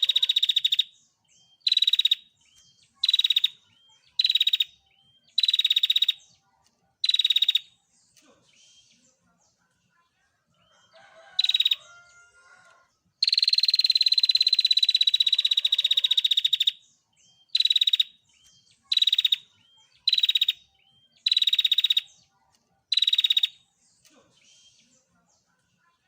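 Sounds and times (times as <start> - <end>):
bird buzzy trill: 0.0 - 6.3, 7.0 - 7.7, 11.0 - 12.1, 13.2 - 16.8, 17.4 - 22.1, 22.9 - 23.6
faint bird chirps: 0.0 - 26.0.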